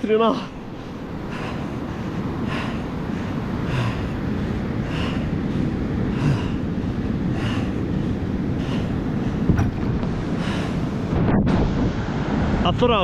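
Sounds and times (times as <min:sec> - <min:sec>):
surf: 0:00.0 - 0:13.0
wind on microphone: 0:00.0 - 0:13.0
man panting: 0:00.2 - 0:09.7, 0:10.3 - 0:10.9.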